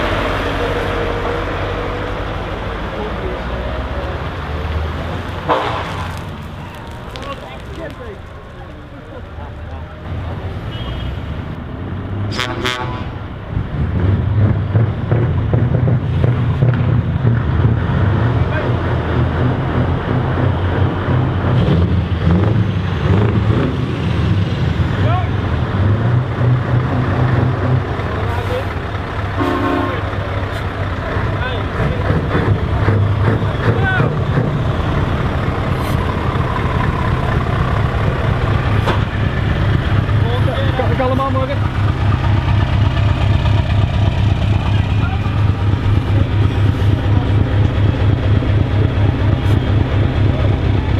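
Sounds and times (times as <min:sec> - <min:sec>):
truck horn blasts: 0:05.4 - 0:06.1, 0:12.3 - 0:13.2, 0:29.4 - 0:30.2
truck engine running: 0:13.4 - 0:50.9.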